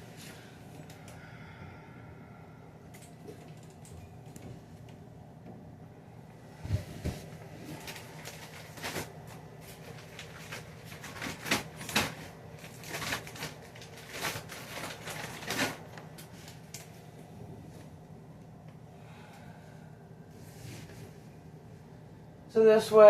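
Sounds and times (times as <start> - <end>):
plastic bottles knocking and crinkling: 7.8 - 16.0.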